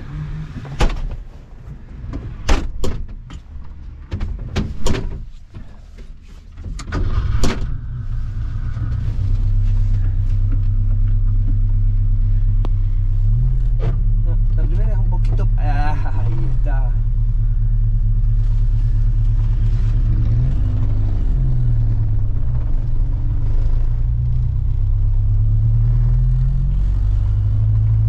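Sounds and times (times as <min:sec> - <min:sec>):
car door shutting: 0:00.5 - 0:01.3
car engine idling: 0:05.2 - 0:28.0.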